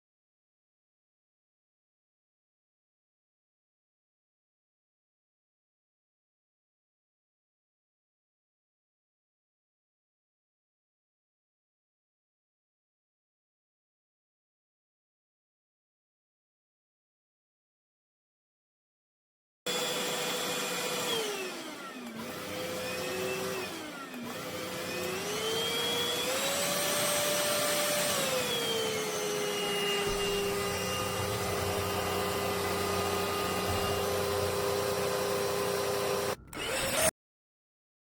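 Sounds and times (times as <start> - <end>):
stick vacuum motor whining: 19.7 - 37.1.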